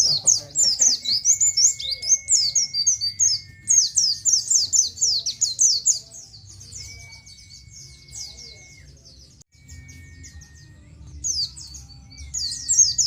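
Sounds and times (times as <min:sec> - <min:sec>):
bird singing high falling chirps: 0:00.0 - 0:13.0.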